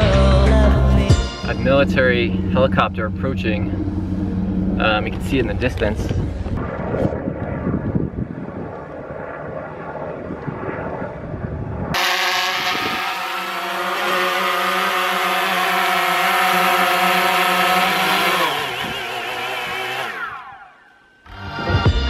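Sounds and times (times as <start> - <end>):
helicopter flying past: 1.6 - 21.2.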